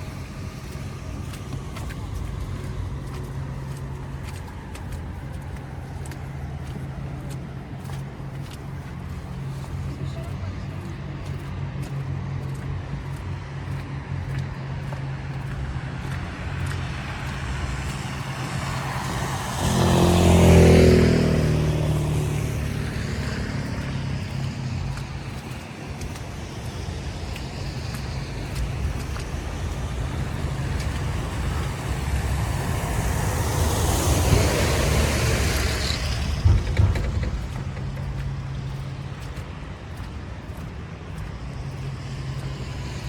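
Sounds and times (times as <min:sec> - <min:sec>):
motor vehicles humming: 0:00.0 - 0:43.0
vehicle passing close: 0:14.6 - 0:43.0.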